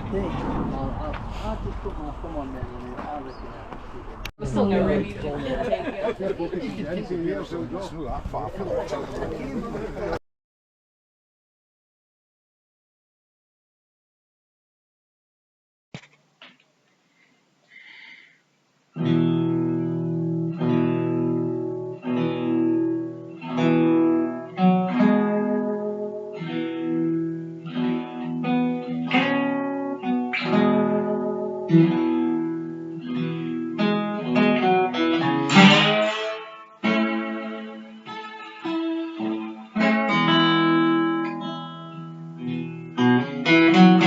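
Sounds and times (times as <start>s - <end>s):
acoustic guitar chords: 19.0s - 44.0s
guitar strumming: 19.0s - 44.0s.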